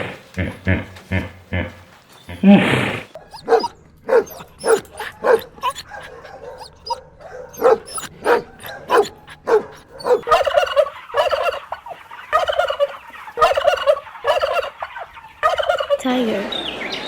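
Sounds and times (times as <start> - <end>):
rolling warbling animal call: 0.0 - 16.0.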